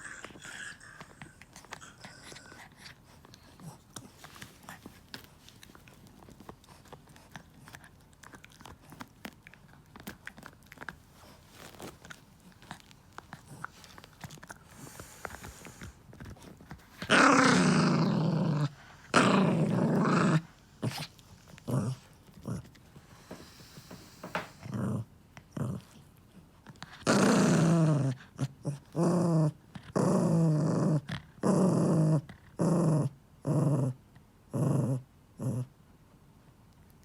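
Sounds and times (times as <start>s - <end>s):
dog growling: 0.0s - 2.9s, 17.0s - 26.0s, 26.9s - 35.7s.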